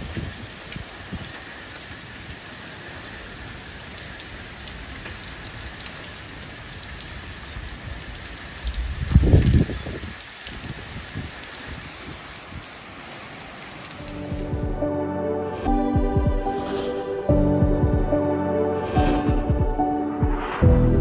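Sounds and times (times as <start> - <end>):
hailstones ticking: 0.0 - 14.8
rain hissing: 0.0 - 14.9
loud low rumble: 19.0 - 21.0.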